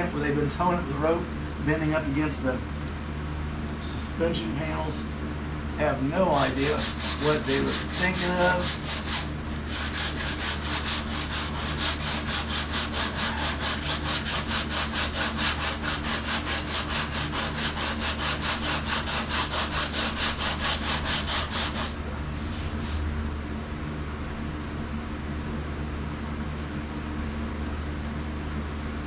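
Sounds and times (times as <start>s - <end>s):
sandpaper scrubbing painted metal: 6.3s - 23.1s.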